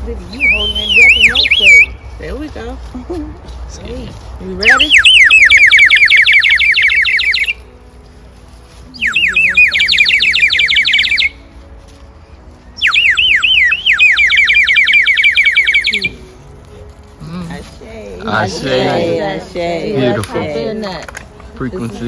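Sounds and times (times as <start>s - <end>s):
water bird whistle warbling trills: 0.4s - 2.0s, 4.6s - 7.6s, 9.0s - 11.4s, 12.8s - 16.2s.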